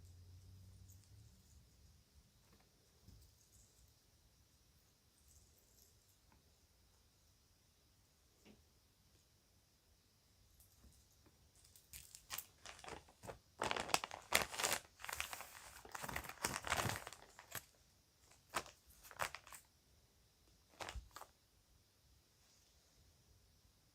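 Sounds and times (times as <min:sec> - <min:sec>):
bag crinkling and rustling: 0:11.9 - 0:19.7, 0:20.7 - 0:21.3.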